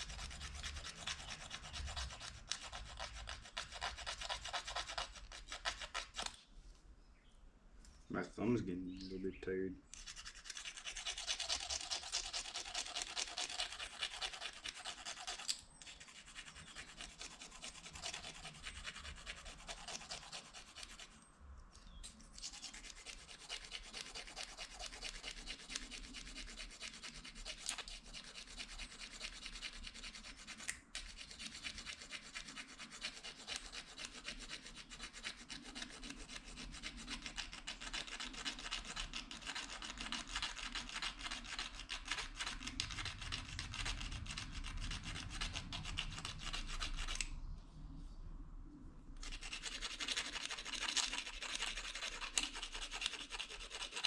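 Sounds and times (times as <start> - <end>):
plastic fork scraping plastic spoon: 21.9 - 47.3, 49.2 - 54.0.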